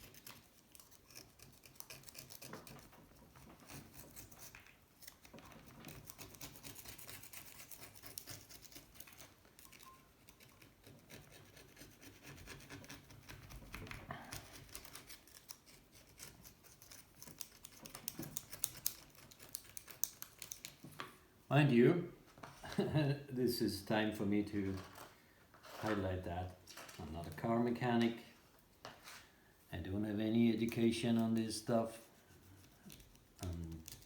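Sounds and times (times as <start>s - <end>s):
tool scraping grime: 0.0s - 20.1s, 31.0s - 34.0s.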